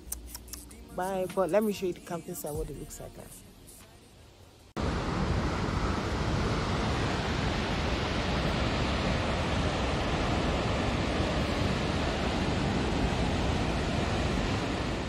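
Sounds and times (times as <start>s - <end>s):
waterfall rushing: 4.8s - 15.0s.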